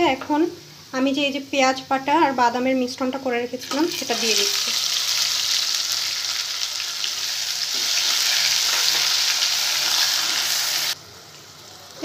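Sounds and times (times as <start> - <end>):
paste sizzling in hot oil: 3.6 - 12.0.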